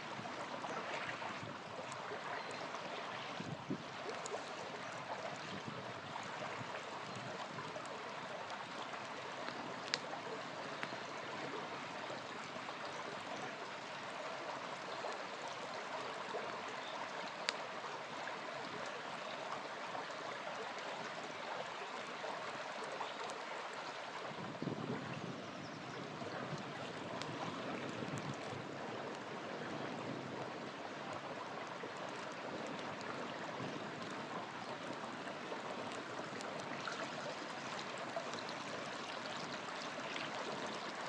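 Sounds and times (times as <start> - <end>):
river flowing: 0.0 - 41.0
campfire popping: 6.0 - 13.2, 26.5 - 29.3.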